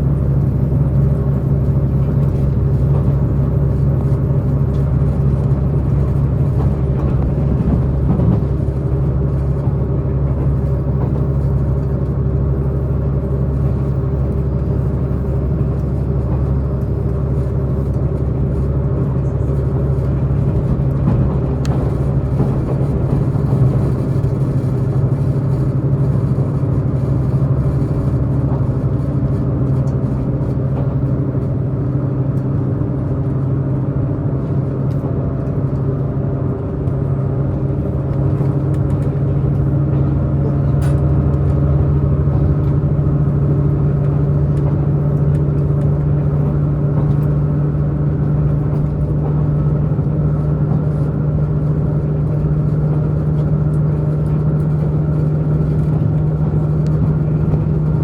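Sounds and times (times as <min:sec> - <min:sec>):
train diesel engine drone: 0:00.0 - 0:58.0
wheel-on-rail rumble: 0:00.0 - 0:58.0.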